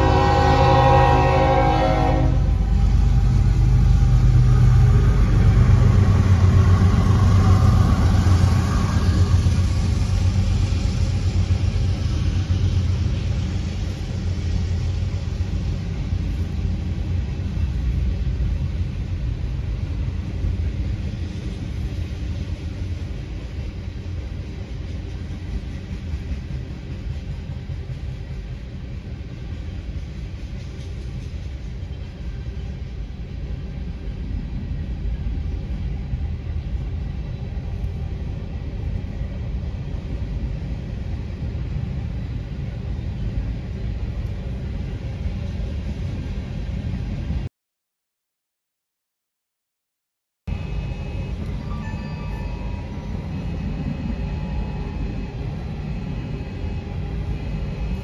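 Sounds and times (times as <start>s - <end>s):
train horn: 0.0s - 2.9s, 50.6s - 55.2s
rumble of freight train: 0.0s - 47.5s, 50.5s - 58.0s.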